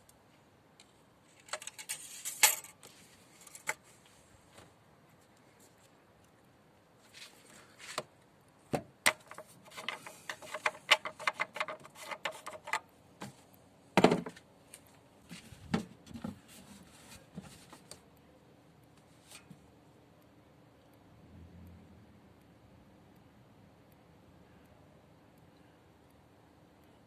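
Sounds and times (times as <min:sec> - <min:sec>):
knocks of handling things: 0:08.7 - 0:13.4, 0:14.0 - 0:14.4.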